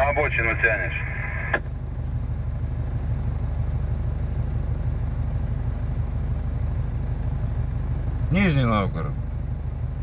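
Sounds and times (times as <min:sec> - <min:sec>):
diesel engine humming: 0:00.0 - 0:10.0
radio click: 0:01.2 - 0:01.7.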